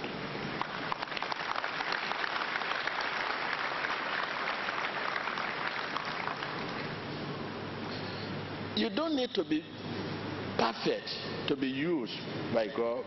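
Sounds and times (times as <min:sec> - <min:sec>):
congregation clapping: 0:00.5 - 0:07.0.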